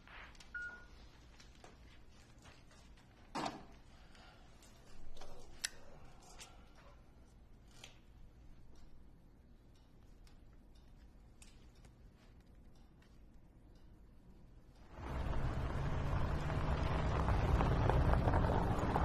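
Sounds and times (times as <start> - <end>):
low hum: 14.7 - 19.0.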